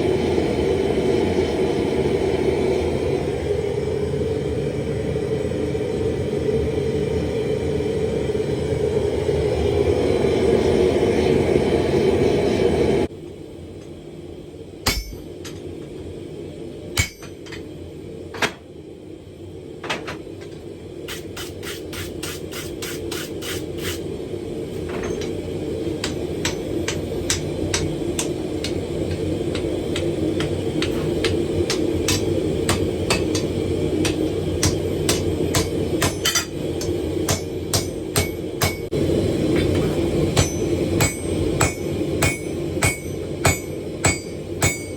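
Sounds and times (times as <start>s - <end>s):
constant roar: 0.0s - 44.9s
hammer striking hot steel on anvil: 14.8s - 15.7s, 17.0s - 17.7s, 21.1s - 24.0s, 25.0s - 39.0s, 39.6s - 44.9s.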